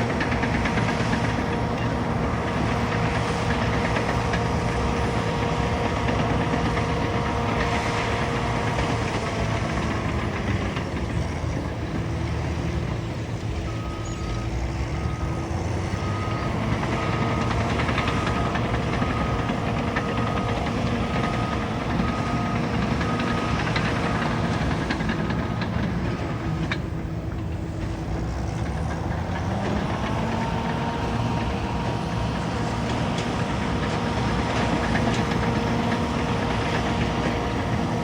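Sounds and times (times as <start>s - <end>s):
bulldozer diesel engine running: 0.0s - 38.0s
reversing alarm beeping: 12.5s - 27.1s.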